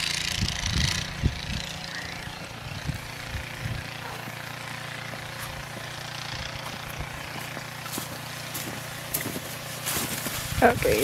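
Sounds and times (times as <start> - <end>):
snow crunching: 4.0 - 11.0
shovel scraping through snow: 7.9 - 11.0.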